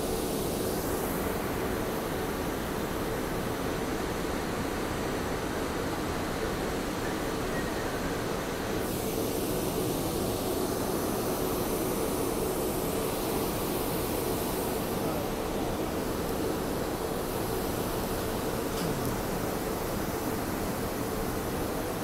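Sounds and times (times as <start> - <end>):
broad hiss: 0.0 - 4.5, 8.0 - 22.0
train car equipment hum: 14.0 - 21.1.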